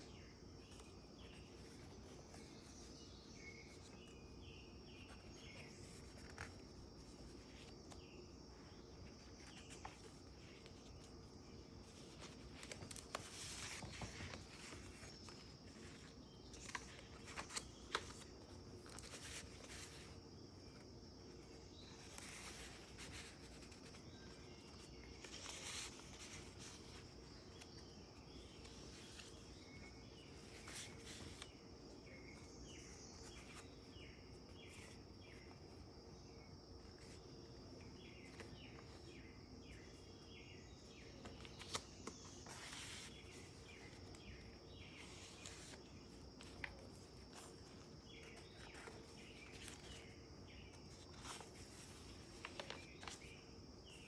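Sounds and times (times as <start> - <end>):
paper rustling: 0.0 - 35.9, 36.8 - 54.0
pages being turned: 5.0 - 33.9, 37.8 - 40.1, 40.9 - 54.0.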